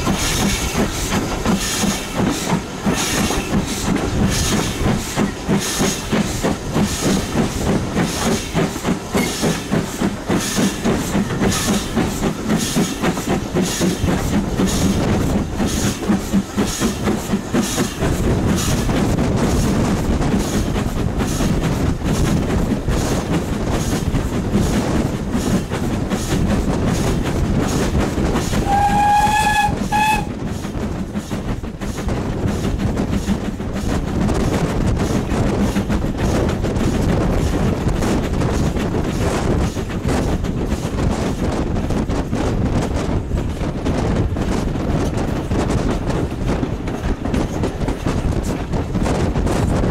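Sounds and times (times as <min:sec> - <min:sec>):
steam train running: 0:00.0 - 0:49.9
locomotive whistle: 0:28.6 - 0:30.3.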